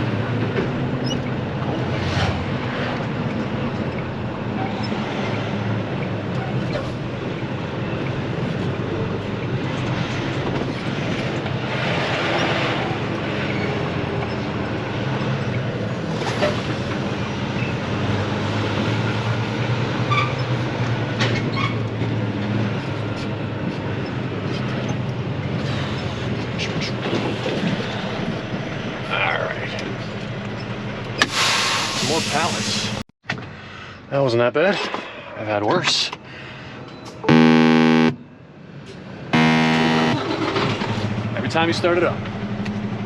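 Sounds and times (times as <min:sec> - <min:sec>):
truck engine running: 0:37.3 - 0:38.4, 0:39.4 - 0:43.0.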